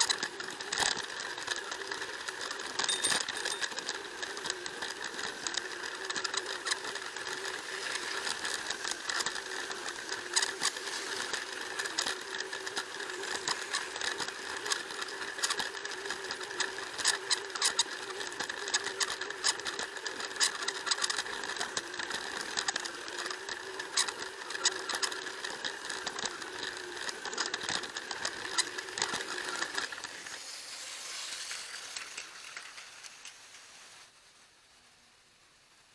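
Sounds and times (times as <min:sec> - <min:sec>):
toy train motor whirring: 0:00.0 - 0:35.4
clicks and rattles: 0:02.8 - 0:03.8
hiss: 0:30.2 - 0:35.6.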